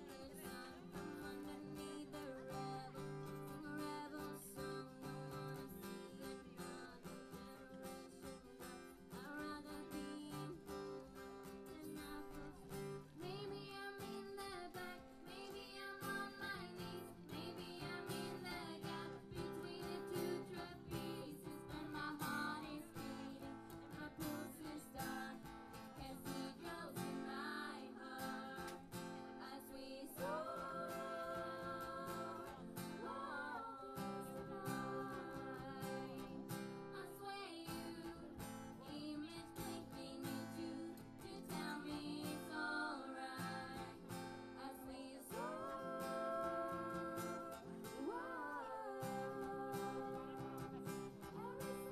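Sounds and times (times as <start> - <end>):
acoustic guitar strummed: 0.0 - 51.9
person singing: 0.0 - 51.9.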